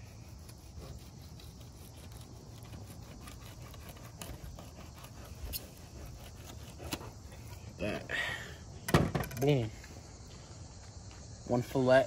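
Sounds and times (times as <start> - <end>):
knife scraping fish skin: 0.0 - 7.6.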